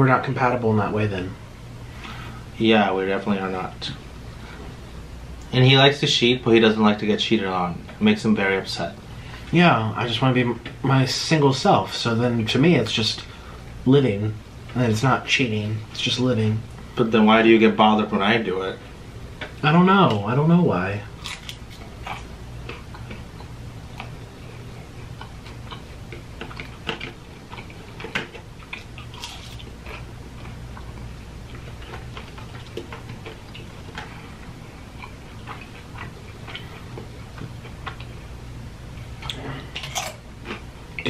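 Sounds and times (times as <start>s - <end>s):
steady low hum: 0.0s - 41.0s
person chewing crunchy food: 21.1s - 38.2s.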